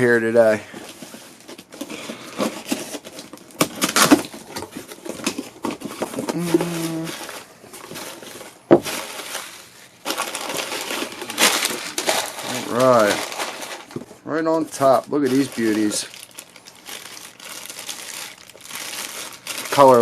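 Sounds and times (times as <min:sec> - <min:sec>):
packaging rustling and tearing: 0:00.3 - 0:20.0.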